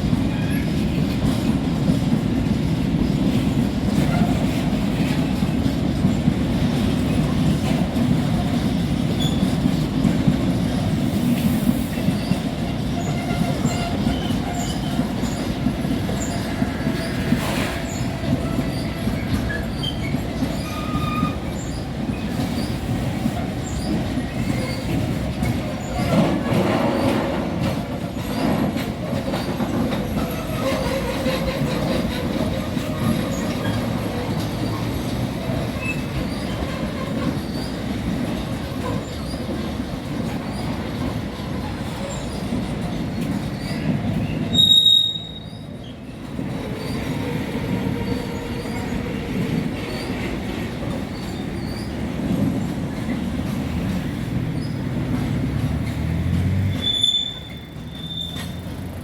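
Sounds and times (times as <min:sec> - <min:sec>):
train wheels rumbling: 0:00.0 - 0:59.0
high-pitched wheel squeal: 0:44.5 - 0:45.6, 0:56.6 - 0:58.6.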